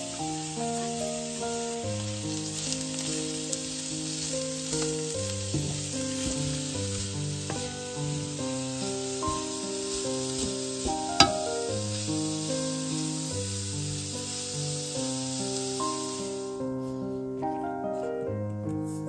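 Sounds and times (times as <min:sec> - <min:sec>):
vegetables sizzling in a frying pan: 0:00.0 - 0:17.6
soft instrumental music: 0:00.0 - 0:19.0
spatula scraping and tapping pan: 0:04.7 - 0:07.8, 0:09.2 - 0:11.8.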